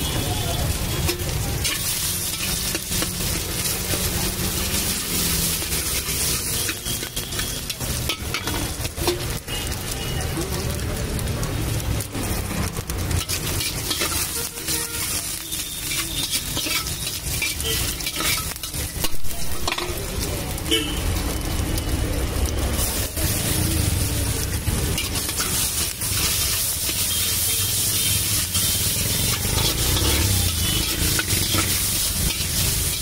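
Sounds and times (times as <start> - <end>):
food sizzling in hot oil: 0.0 - 33.0
metal spoon scraping pan: 1.0 - 9.4, 13.1 - 20.0, 24.9 - 33.0.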